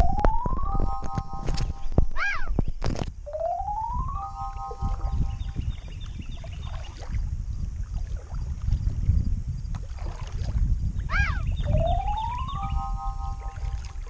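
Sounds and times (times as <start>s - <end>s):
faint bird chirps: 4.4s - 7.0s, 11.1s - 13.8s
whistled call: 11.1s - 14.0s.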